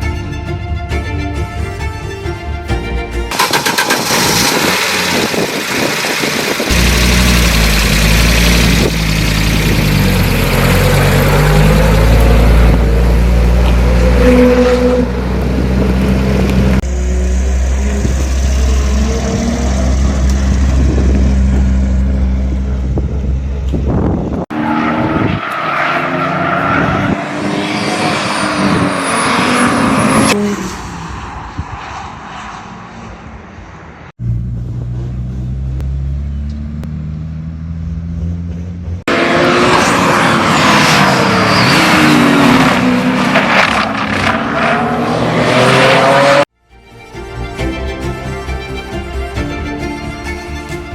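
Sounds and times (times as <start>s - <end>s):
car engine driven hard: 0.0s - 50.9s
cars revving and driving past: 0.0s - 50.9s
car engine idling: 3.2s - 13.7s.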